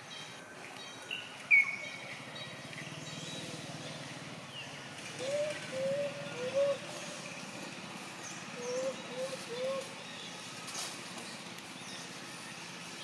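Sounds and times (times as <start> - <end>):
bird high chirp: 0.0 - 7.3, 8.2 - 13.0
bird low cooing: 5.1 - 7.2, 8.5 - 10.0.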